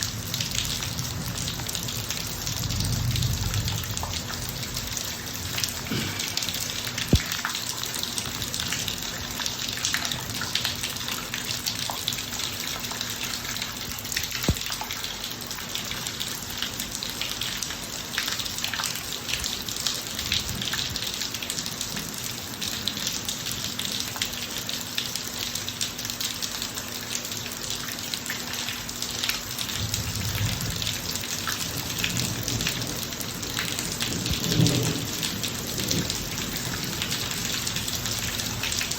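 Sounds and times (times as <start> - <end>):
rain falling on pavement: 0.0 - 38.9.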